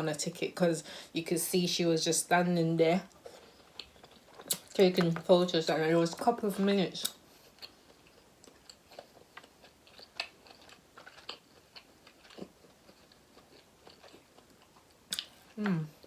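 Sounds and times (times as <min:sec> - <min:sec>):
chewing and mouth sounds: 0:03.1 - 0:05.2, 0:07.0 - 0:16.0.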